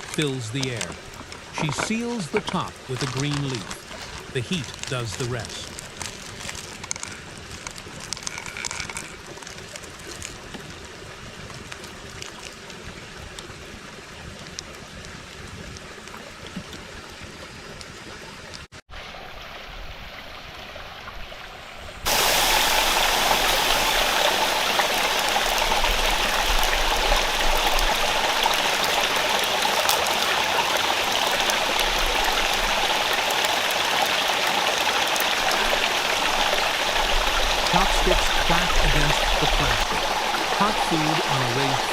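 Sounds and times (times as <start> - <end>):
stream rushing over rocks: 0.0 - 9.7, 22.1 - 41.9.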